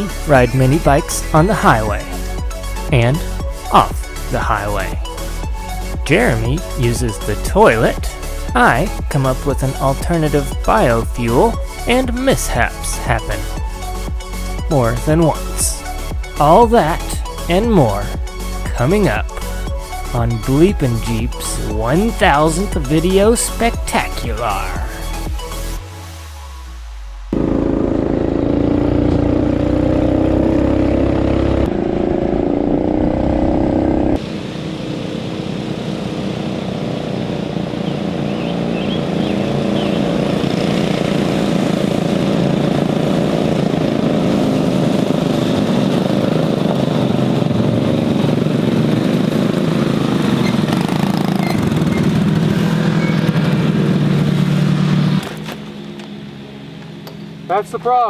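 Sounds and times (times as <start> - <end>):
small engine running: 27.3 - 57.5.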